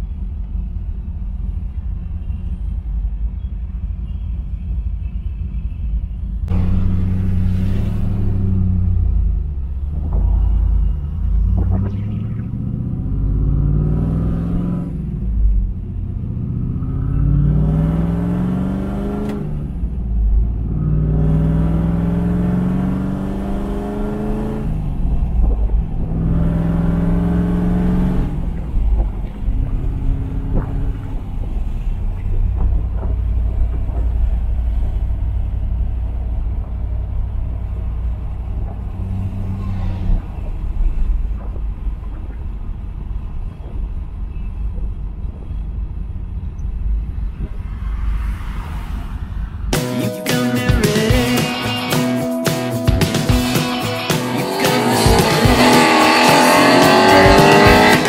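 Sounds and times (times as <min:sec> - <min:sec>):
car engine revving through gears: 0:06.5 - 0:35.0, 0:53.3 - 0:58.0.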